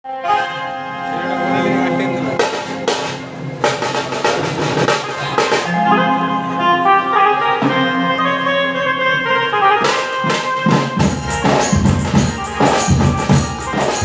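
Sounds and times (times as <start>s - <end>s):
fast drum rolls: 2.4s - 5.7s, 10.3s - 14.0s
wind and brass sustained notes: 5.7s - 9.9s.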